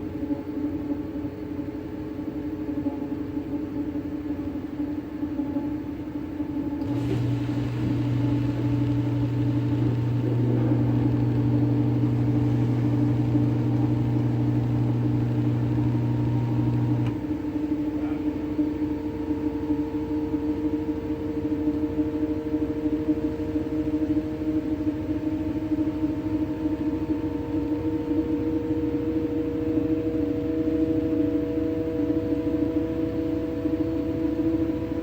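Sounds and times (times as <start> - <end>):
washing machine spinning: 6.4 - 35.0
deep loud hum: 6.8 - 18.3.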